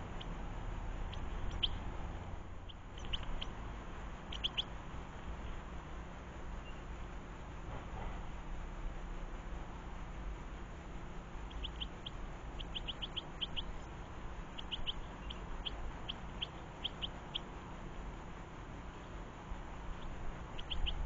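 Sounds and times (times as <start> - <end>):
small songbirds chirping: 0.0 - 7.6, 10.9 - 21.0
low background rumble: 0.0 - 21.0.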